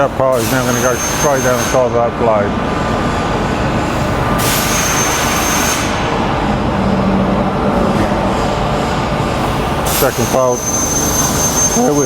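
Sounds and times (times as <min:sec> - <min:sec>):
press brake machine running: 0:02.7 - 0:12.0.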